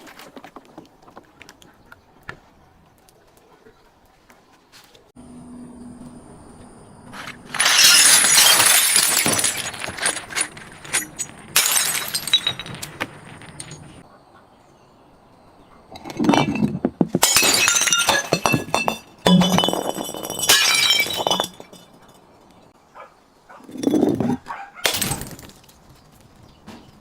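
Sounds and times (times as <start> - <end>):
glass bottles shattering: 7.5 - 14.0, 16.0 - 22.2, 23.7 - 25.7.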